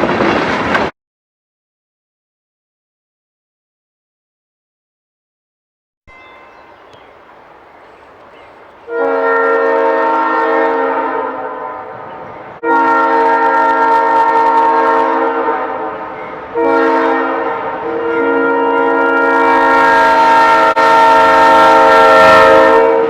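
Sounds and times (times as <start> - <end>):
locomotive air horn blasts: 6.1 - 23.0.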